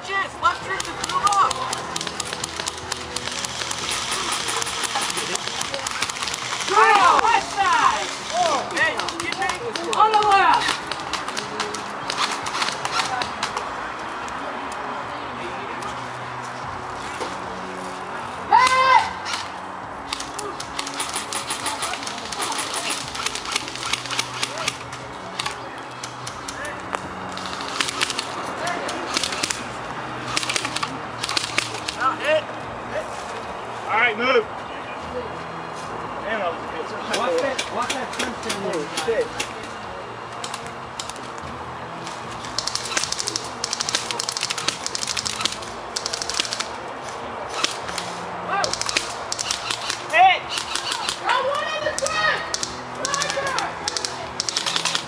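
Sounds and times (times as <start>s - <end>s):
airsoft guns firing: 0.7s - 13.4s, 20.1s - 24.8s, 30.3s - 32.0s, 42.5s - 46.7s, 47.5s - 51.2s, 52.0s - 55.0s.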